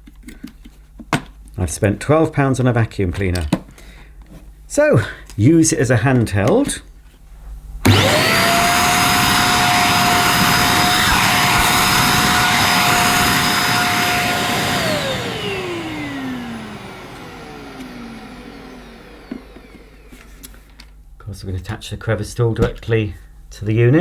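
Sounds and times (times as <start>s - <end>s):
handheld vacuum cleaner whining: 7.8s - 20.6s.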